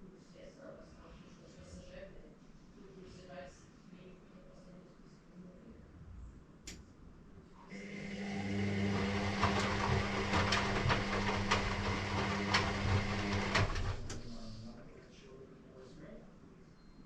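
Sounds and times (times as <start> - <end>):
washing machine motor hum: 7.7 - 14.9.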